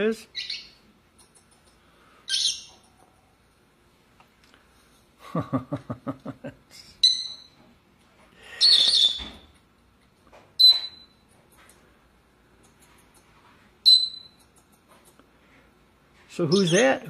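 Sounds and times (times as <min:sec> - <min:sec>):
parrot squawking: 0:00.3 - 0:00.8, 0:02.3 - 0:02.7, 0:07.0 - 0:07.5, 0:08.6 - 0:09.3, 0:13.8 - 0:14.3
parrot whistles: 0:08.6 - 0:09.4, 0:13.8 - 0:14.3.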